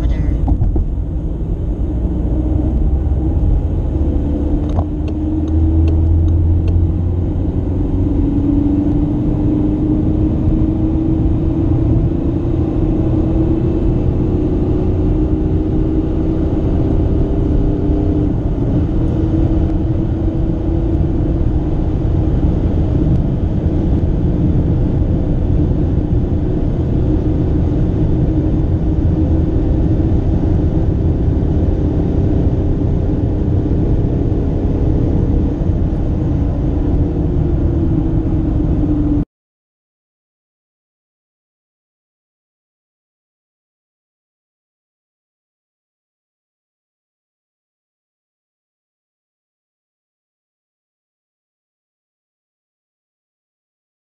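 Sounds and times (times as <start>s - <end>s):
diesel engine accelerating: 0.0s - 39.2s
road and wind noise: 0.0s - 39.3s.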